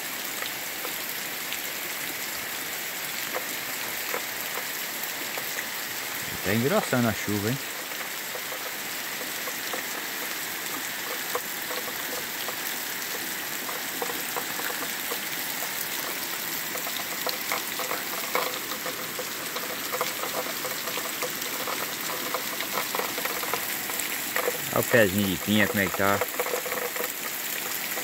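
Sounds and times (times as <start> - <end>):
heavy rain on leaves: 0.0 - 28.0
close raindrop hits: 3.3 - 28.0.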